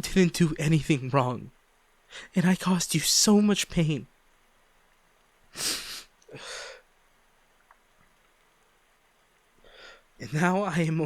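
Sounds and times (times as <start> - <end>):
man sniffing: 5.5 - 6.8
man breathing out: 5.6 - 6.8.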